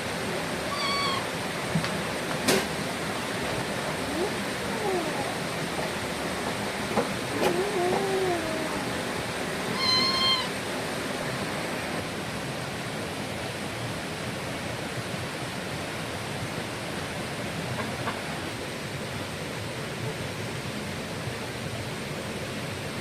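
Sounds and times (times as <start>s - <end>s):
short animal call: 0.7s - 1.3s, 9.7s - 10.6s.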